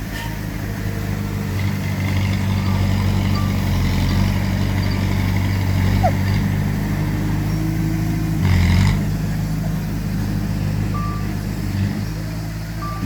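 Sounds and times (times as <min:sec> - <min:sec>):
heavy diesel machinery running: 0:00.0 - 0:13.0
reversing alarm beep: 0:12.8 - 0:13.0.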